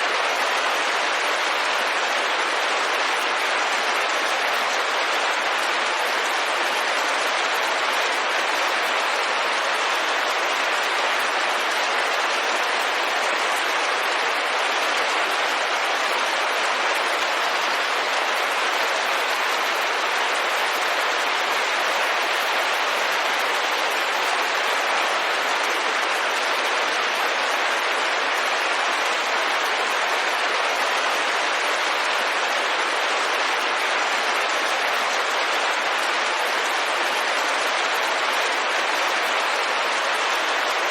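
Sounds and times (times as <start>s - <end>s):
rain on a window: 0.0s - 40.9s.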